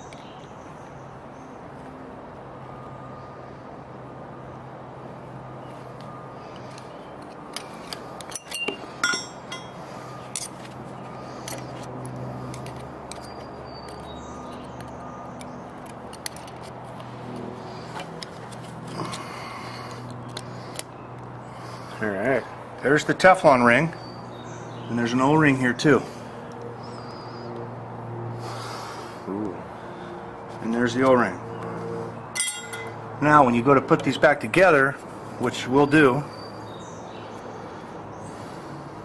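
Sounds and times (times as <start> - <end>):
metal tools clicking on metal: 7.9 - 10.6, 32.4 - 33.0.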